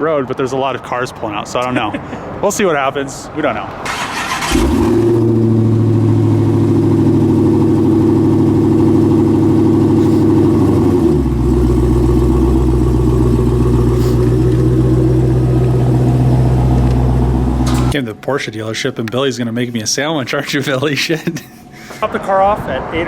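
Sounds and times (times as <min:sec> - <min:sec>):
car engine idling: 0:03.9 - 0:18.0.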